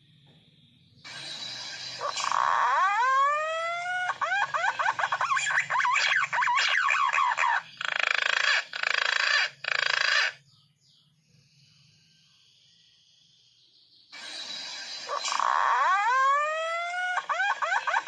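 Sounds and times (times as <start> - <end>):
pigeons calling with wavering whistles: 1.1 - 10.4, 14.2 - 18.0.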